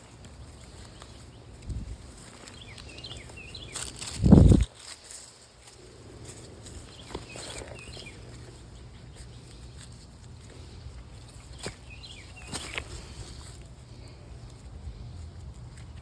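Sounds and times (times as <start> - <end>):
footsteps on stones: 0.1 - 8.7, 9.5 - 13.7
small bird chirping: 0.4 - 4.7, 6.4 - 16.0.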